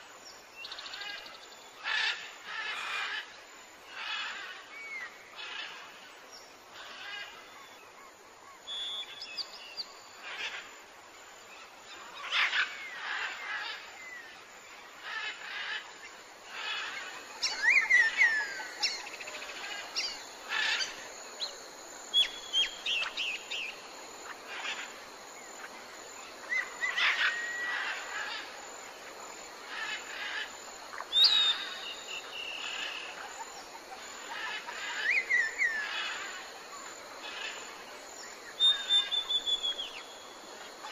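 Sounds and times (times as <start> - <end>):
steady background hiss: 0.0 - 40.9
birds whistling and chirping: 8.7 - 9.9, 31.1 - 33.0, 38.6 - 40.0.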